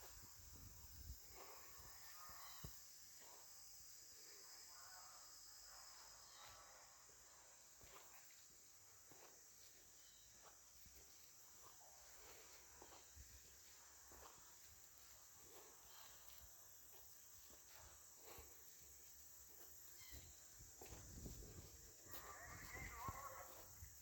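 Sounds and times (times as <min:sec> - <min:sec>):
crickets chirring: 0:00.0 - 0:24.0
soft footsteps: 0:07.8 - 0:24.0.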